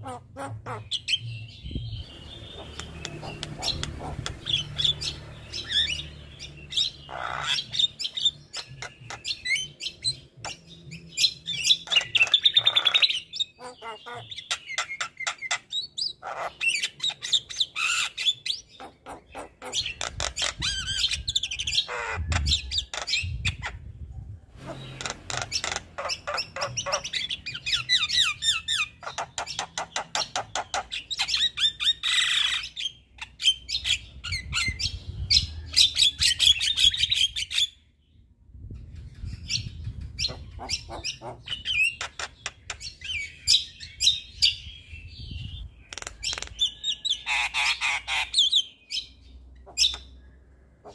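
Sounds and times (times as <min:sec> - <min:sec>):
myna singing clicks and trills: 0:00.0 - 0:23.9.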